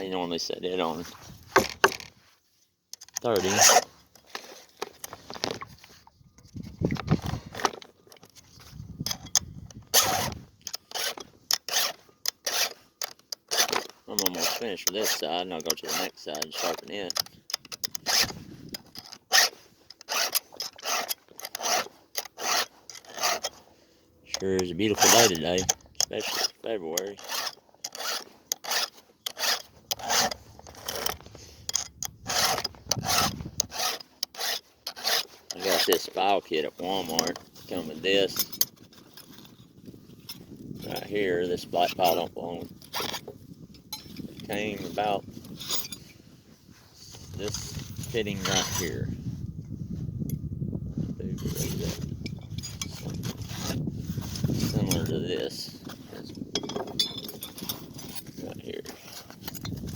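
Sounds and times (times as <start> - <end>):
file rasping on chainsaw chain: 3.1 - 4.7, 9.0 - 39.6, 47.2 - 49.0, 51.4 - 53.8, 54.4 - 59.9.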